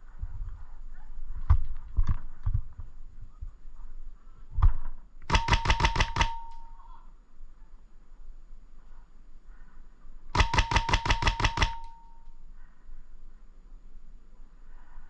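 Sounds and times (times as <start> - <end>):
airsoft gun firing burst: 5.3 - 6.7, 10.4 - 12.2.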